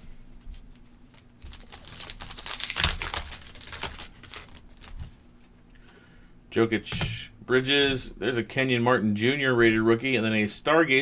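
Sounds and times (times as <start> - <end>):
foil wrapper tearing and crinkling: 1.1 - 5.1.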